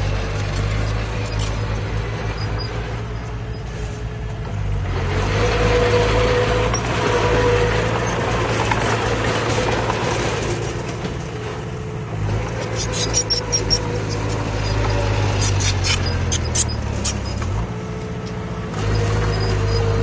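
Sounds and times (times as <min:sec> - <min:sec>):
heavy diesel machine engine: 0:00.0 - 0:20.0.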